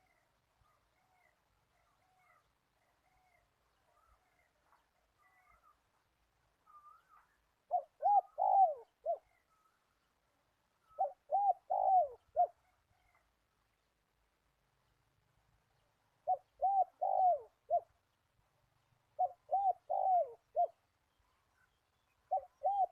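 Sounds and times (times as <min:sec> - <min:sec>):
faint bird chirps: 0:00.0 - 0:14.0, 0:14.8 - 0:22.9
dove cooing: 0:06.7 - 0:09.5, 0:10.9 - 0:13.2, 0:16.2 - 0:18.0, 0:19.1 - 0:20.8, 0:22.3 - 0:22.9.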